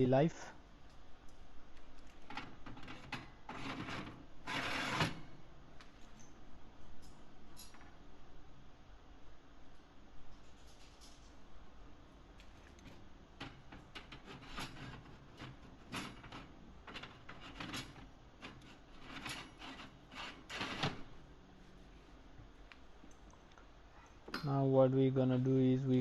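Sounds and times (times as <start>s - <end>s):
oven parts clicking and clattering: 12.6s - 21.2s.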